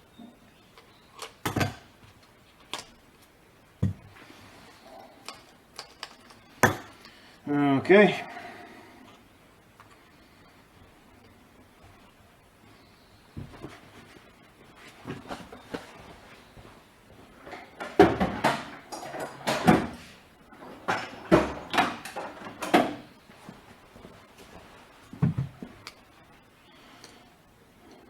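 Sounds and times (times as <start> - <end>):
plastic and metal parts clattering: 5.2 - 7.2, 17.4 - 23.1.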